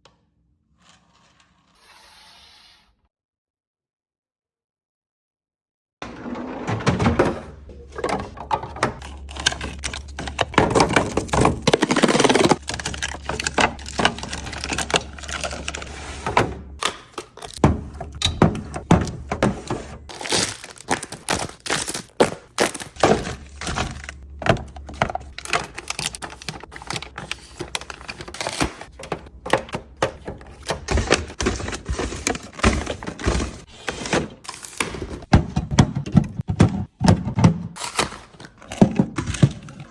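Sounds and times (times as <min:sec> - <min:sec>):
packages knocking and clicking: 0:07.3 - 0:39.9
packaging rustling: 0:09.1 - 0:15.9, 0:20.1 - 0:29.2, 0:30.4 - 0:35.2.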